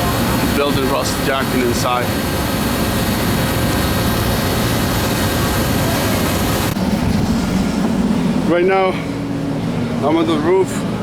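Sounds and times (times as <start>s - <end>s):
loud rushing noise: 1.4s - 10.0s
dull low hum: 2.2s - 10.0s.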